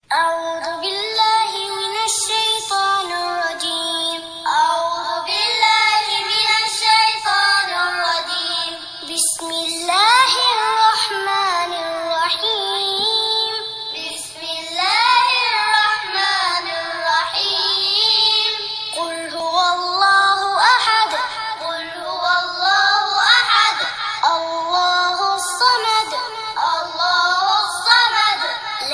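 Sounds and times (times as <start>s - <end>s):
high-pitched singing voice: 0.0s - 28.9s.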